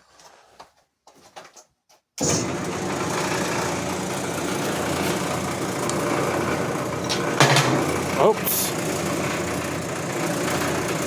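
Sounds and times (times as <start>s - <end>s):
electric motor humming: 2.4s - 11.0s.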